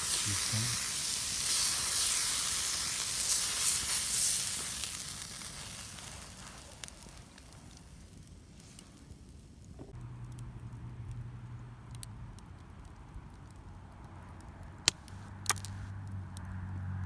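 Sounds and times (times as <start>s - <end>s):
food sizzling on iron plate: 0.0s - 8.8s.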